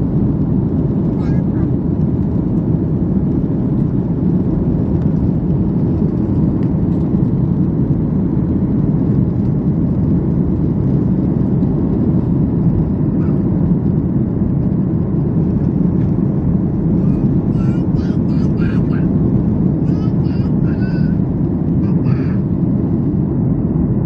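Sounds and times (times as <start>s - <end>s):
jet engines rumbling: 0.0s - 24.0s
airflow: 5.8s - 24.0s.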